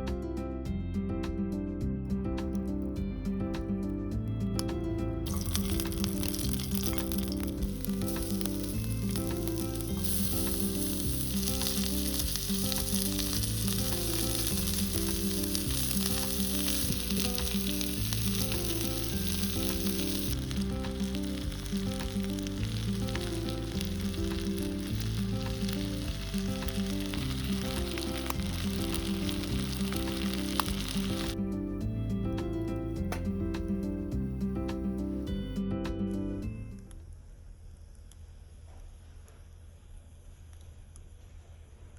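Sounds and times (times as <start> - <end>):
instrumental background music: 0.0 - 37.0
food sizzling on fire: 2.4 - 3.0, 3.8 - 35.4.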